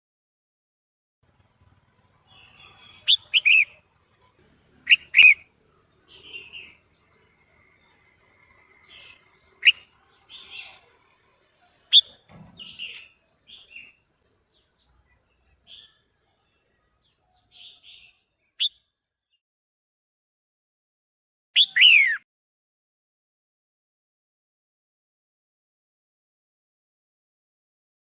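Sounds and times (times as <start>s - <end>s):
bird short sharp calls: 2.3s - 3.8s, 4.9s - 5.5s, 21.6s - 22.2s.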